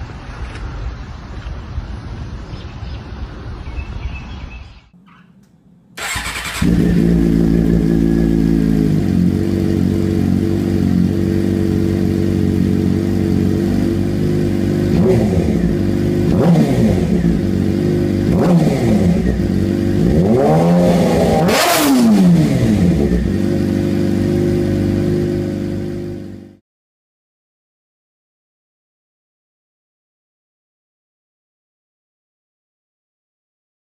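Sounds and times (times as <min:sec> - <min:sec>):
motorcycle engine idling: 0:06.0 - 0:20.3, 0:22.4 - 0:26.6
motorcycle throttle blips and revving: 0:06.0 - 0:26.6.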